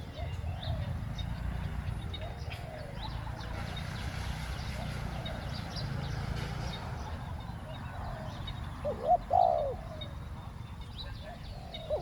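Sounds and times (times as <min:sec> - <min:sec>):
small birds chirping: 0:00.0 - 0:12.0
doves cooing: 0:02.1 - 0:03.6, 0:07.7 - 0:10.5, 0:11.1 - 0:12.0.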